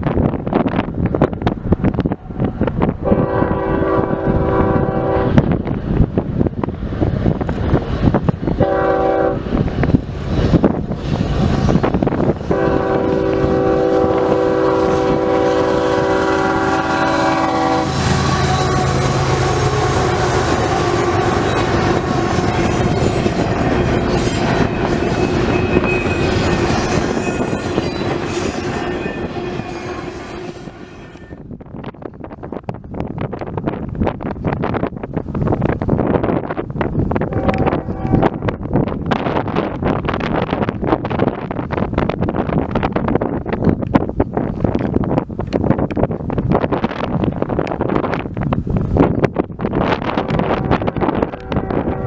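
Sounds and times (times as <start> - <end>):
wind buffeting microphone: 0.0 - 52.0
locomotive air horn blasts: 3.0 - 5.4, 8.6 - 9.5, 12.5 - 31.4, 37.3 - 38.5, 50.2 - 52.0
train wheel clatter: 17.2 - 52.0.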